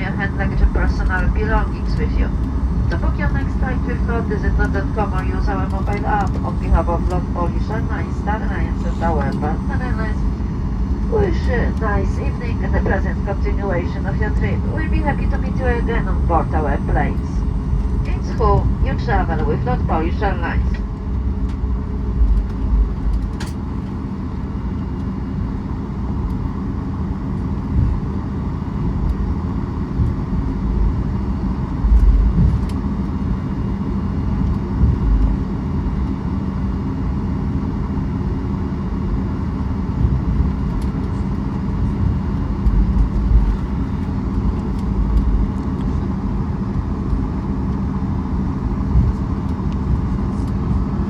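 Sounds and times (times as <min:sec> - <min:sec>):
aircraft engines idling rumble: 0:00.0 - 0:51.0
low thumps from taxiway bumps: 0:27.0 - 0:35.5, 0:39.8 - 0:51.0.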